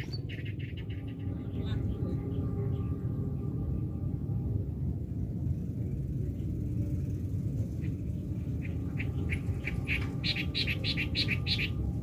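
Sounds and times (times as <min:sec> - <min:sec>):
bird chirping: 0:00.0 - 0:03.0, 0:07.7 - 0:12.0
steady low rumble: 0:00.0 - 0:12.0.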